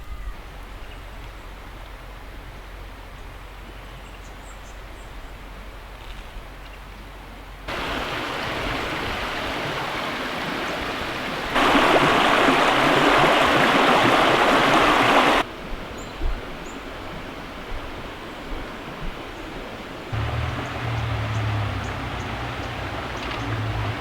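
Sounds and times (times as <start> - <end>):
creek water rushing: 7.7 - 24.0.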